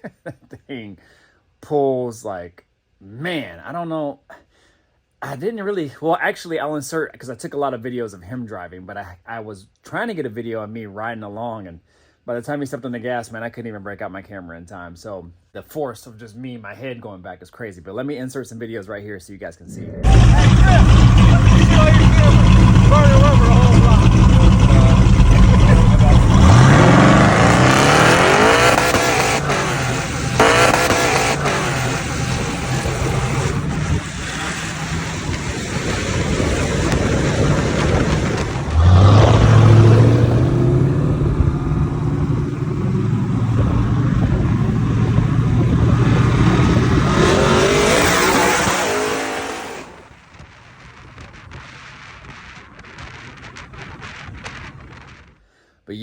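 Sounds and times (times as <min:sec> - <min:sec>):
car engine revving: 0:19.7 - 0:50.1.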